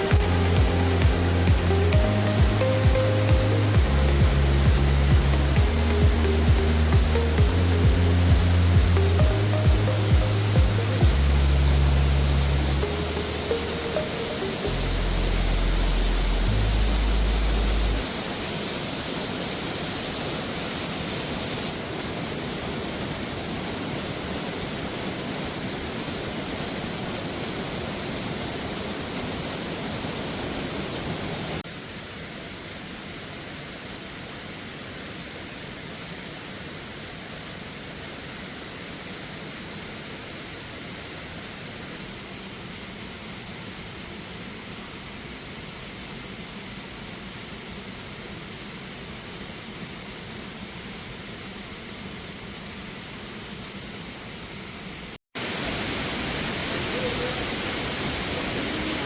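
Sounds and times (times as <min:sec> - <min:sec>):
waterfall rushing: 0:00.0 - 0:42.8, 0:55.4 - 0:59.0.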